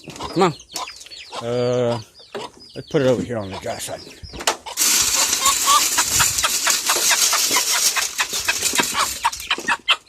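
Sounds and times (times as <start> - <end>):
chickens clucking: 0.0 - 10.0
chicken feed pouring: 4.8 - 10.0.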